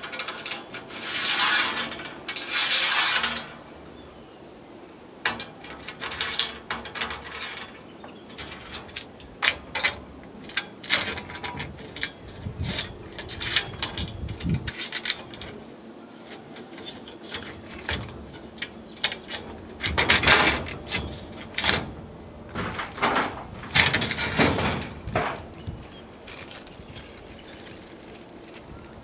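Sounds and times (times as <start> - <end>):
rasping metal scrape: 0.0 - 3.7
clicks and knocks of hardware: 5.2 - 29.0.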